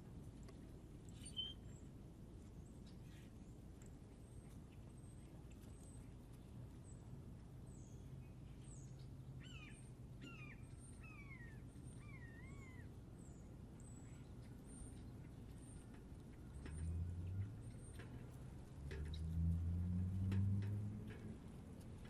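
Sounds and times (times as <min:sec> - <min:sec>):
small birds chipping: 0:00.4 - 0:22.0
low wavering bird calls: 0:01.1 - 0:01.7, 0:09.4 - 0:13.0.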